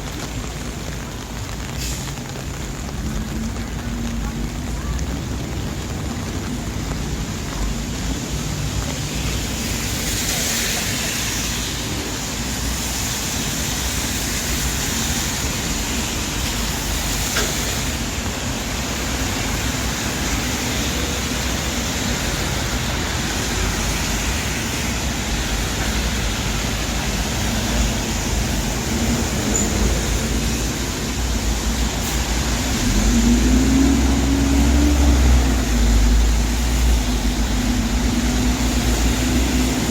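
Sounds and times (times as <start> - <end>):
tyres hissing on wet road: 0.0 - 39.9
heavy vehicle engine passing: 19.3 - 39.9.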